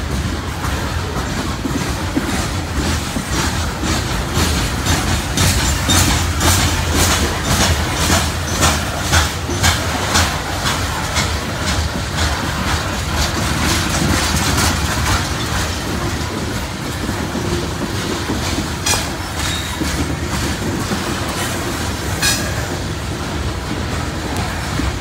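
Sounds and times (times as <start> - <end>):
train wheels clattering on rails: 0.0 - 25.0
sharp metal clanks: 22.2 - 22.7.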